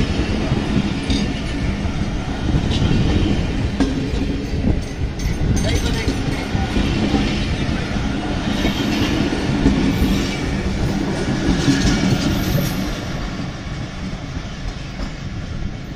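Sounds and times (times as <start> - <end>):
train wheels clattering on rails: 0.0 - 15.9.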